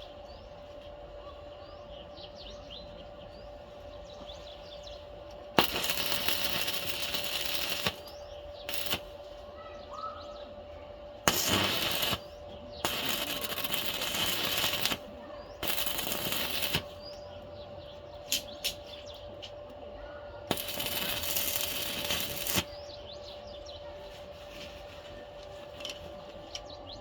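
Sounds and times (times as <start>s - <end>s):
steady hum: 0.0s - 26.4s
small birds chirping: 0.0s - 27.0s
arc welding crackling: 4.7s - 9.4s, 11.1s - 19.8s, 20.4s - 23.2s.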